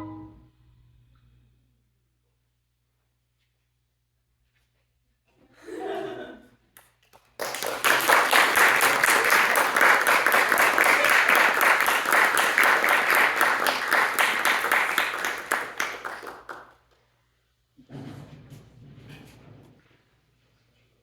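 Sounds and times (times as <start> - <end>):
audience applauding: 7.1 - 16.8.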